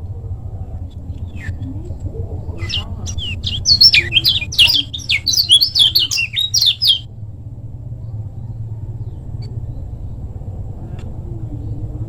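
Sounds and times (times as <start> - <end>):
bird singing sharp chirps: 2.6 - 7.0.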